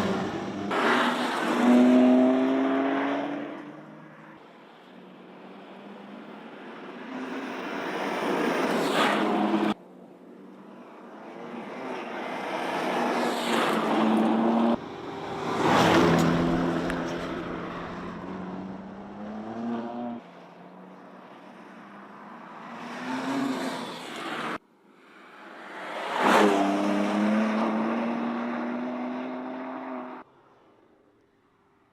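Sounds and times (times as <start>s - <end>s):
car engine passing by: 11.6s - 20.2s.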